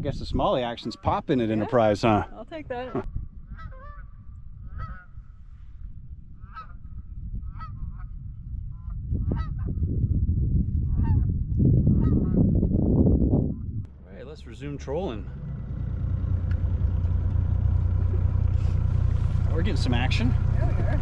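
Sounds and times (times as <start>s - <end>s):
low rumble: 2.3s - 21.0s.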